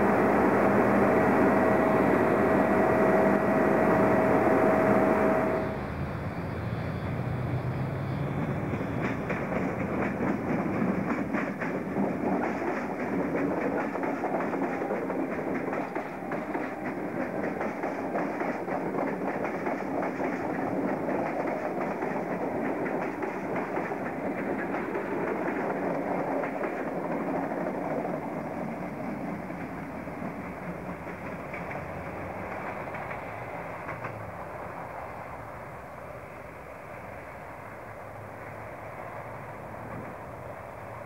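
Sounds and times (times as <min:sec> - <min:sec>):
electric train passing: 0:00.0 - 0:41.0
wheels clacking over rail joints: 0:08.3 - 0:34.8.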